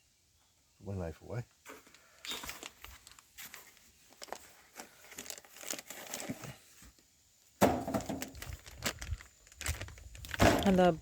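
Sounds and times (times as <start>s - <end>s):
packaging rustling and crinkling: 1.9s - 7.0s, 7.8s - 11.0s.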